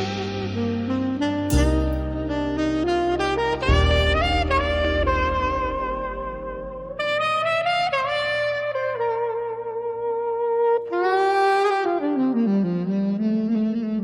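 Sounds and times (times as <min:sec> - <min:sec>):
soft backing music: 0:00.0 - 0:08.1
jazz saxophone: 0:00.0 - 0:14.0.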